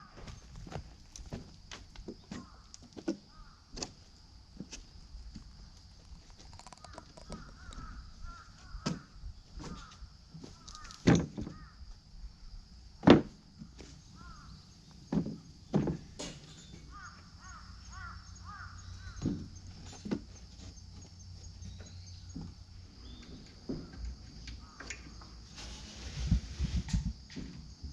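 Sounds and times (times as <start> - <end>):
crows cawing: 3.3 - 3.7, 6.5 - 10.0, 10.6 - 11.8, 14.2 - 14.5, 16.9 - 19.2.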